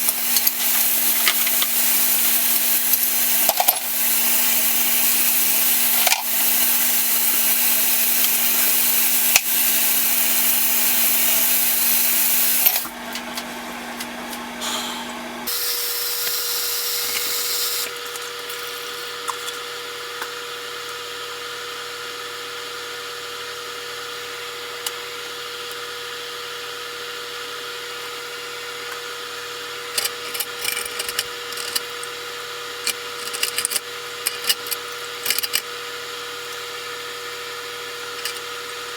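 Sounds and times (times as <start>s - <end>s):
power tool hissing: 0.0s - 13.0s, 14.6s - 18.0s
steady hum: 0.0s - 18.0s.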